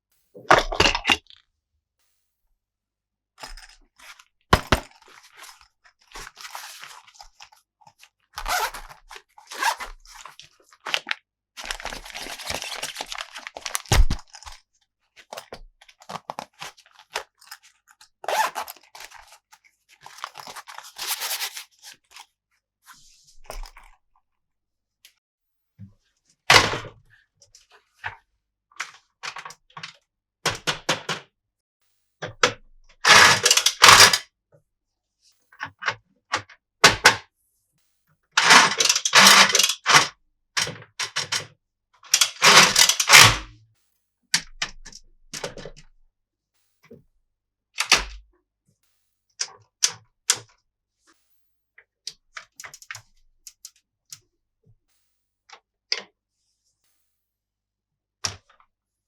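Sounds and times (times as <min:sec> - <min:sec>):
rustling and scraping: 0:11.6 - 0:14.6, 0:20.0 - 0:22.2.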